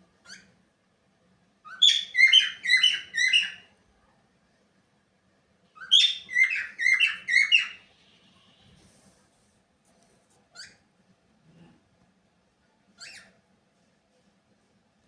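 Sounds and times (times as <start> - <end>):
cockatiel chirping: 0.2 - 0.5, 1.7 - 3.6, 5.8 - 7.8, 13.0 - 13.3.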